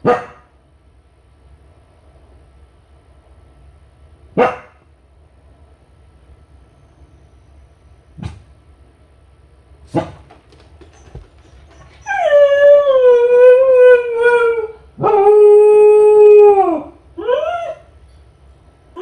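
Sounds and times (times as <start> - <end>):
dog howling: 10.8 - 18.0.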